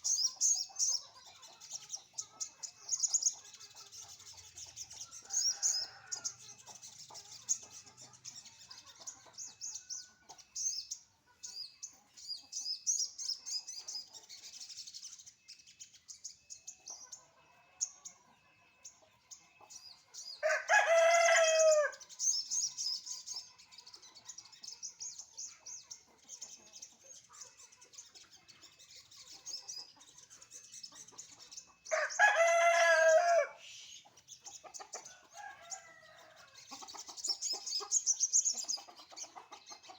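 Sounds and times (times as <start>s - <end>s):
small birds chirping: 0.0s - 39.9s
rooster crowing: 20.4s - 22.0s, 31.9s - 33.6s.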